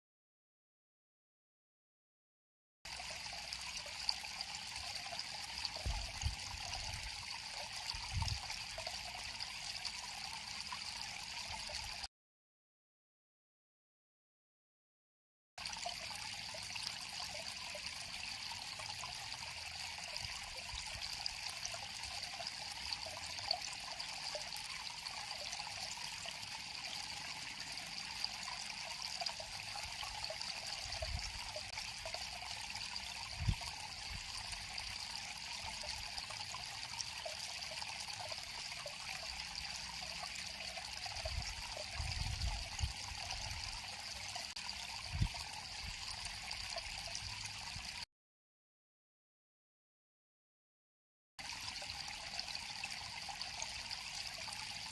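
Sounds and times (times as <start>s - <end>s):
river water flowing: 15.6s - 48.0s.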